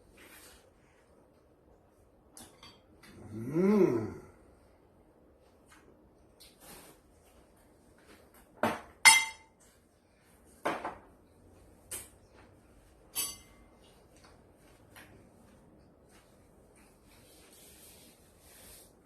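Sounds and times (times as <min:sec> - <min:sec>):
dishes and utensils clattering: 0:08.6 - 0:09.6, 0:13.1 - 0:14.0.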